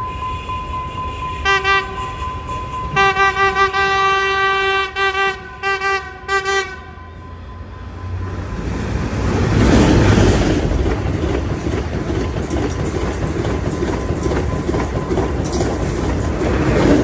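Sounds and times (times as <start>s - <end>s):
diesel locomotive passing: 0.0s - 17.0s
wheels clicking over rail joints: 9.5s - 17.0s.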